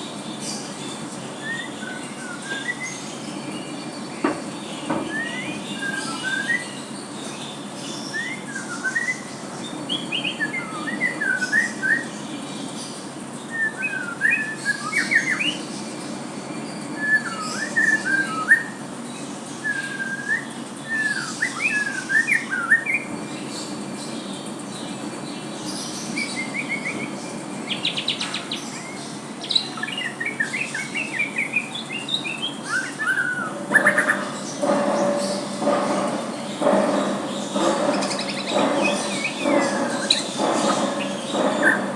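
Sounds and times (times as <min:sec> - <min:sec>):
bird whistled song: 0:01.4 - 0:03.4, 0:04.2 - 0:12.2, 0:13.5 - 0:15.8, 0:17.0 - 0:18.9, 0:19.6 - 0:23.7, 0:26.1 - 0:41.9
steady low hum: 0:31.0 - 0:41.9
fast rattling trill: 0:32.0 - 0:41.9.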